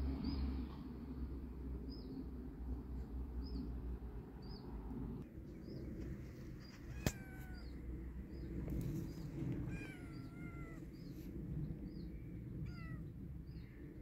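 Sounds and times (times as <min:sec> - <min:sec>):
low background rumble: 0:00.0 - 0:14.0
bird chirping: 0:05.5 - 0:13.8.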